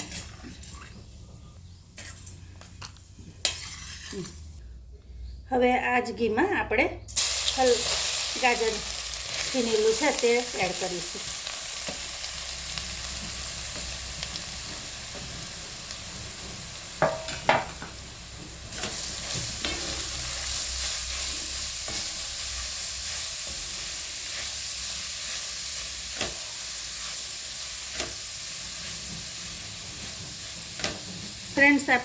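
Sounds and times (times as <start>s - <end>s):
carrots sizzling in hot fat: 7.1s - 32.0s.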